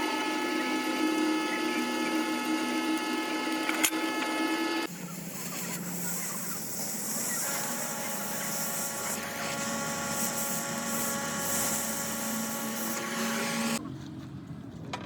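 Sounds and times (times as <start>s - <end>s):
workshop machine humming and whining: 0.0s - 14.4s
hiss: 4.9s - 13.8s.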